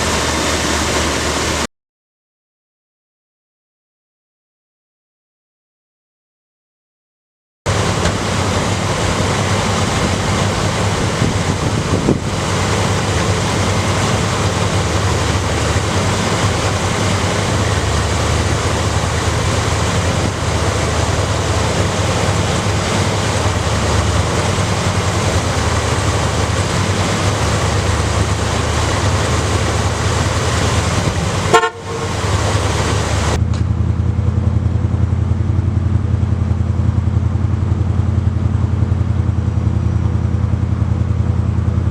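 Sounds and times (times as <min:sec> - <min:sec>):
truck engine running: 0:00.0 - 0:01.7, 0:07.7 - 0:41.9
road and wind rush: 0:07.7 - 0:41.9.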